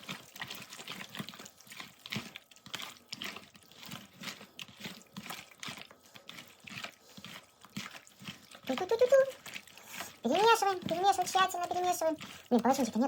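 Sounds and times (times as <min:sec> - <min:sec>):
wet squelching of hand mixing meat: 0:00.0 - 0:13.0.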